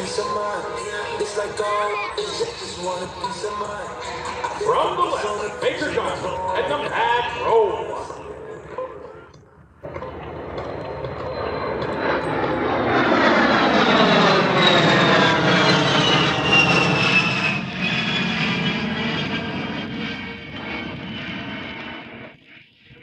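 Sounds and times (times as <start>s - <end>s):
high jet whine falling in pitch: 0.0s - 23.0s
jet engines flyby roar: 0.0s - 23.0s.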